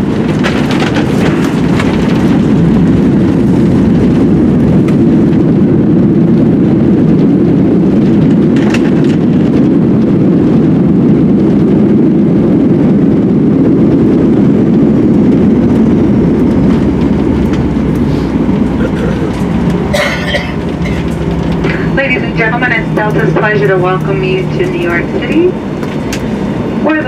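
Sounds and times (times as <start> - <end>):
jet engines roaring in cabin: 0.0 - 27.0.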